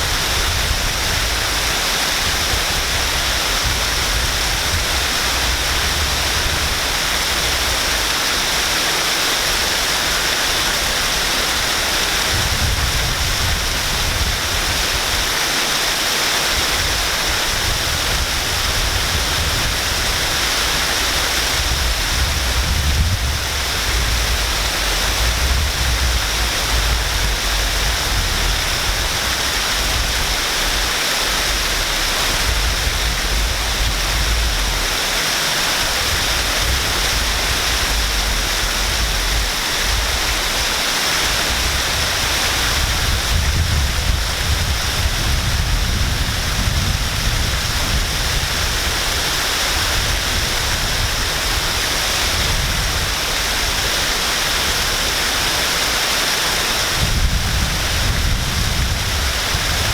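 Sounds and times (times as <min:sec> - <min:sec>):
waterfall rushing: 0:00.0 - 0:59.9
deep low rumble: 0:21.7 - 0:35.1.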